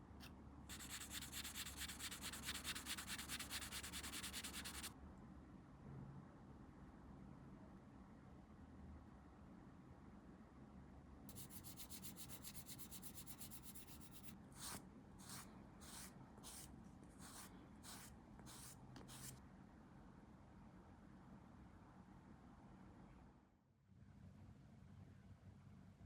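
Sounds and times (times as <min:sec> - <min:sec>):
hand sanding plastic: 0:00.7 - 0:04.9.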